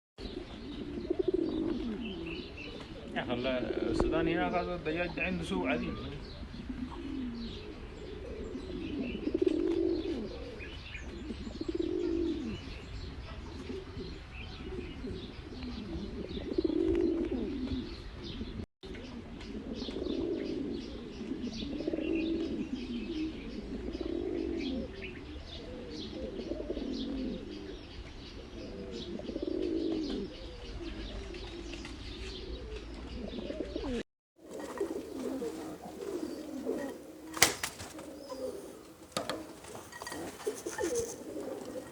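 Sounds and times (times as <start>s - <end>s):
pigeons cooing: 0.2s - 41.9s
faint high chirping: 34.5s - 41.9s.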